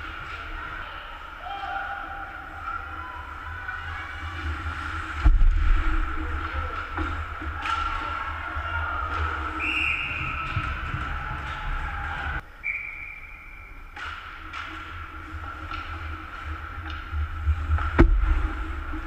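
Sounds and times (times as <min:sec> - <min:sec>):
low rumble on microphone: 0:03.5 - 0:12.4, 0:15.4 - 0:19.0
whistle blasts: 0:09.6 - 0:10.6, 0:12.6 - 0:13.8.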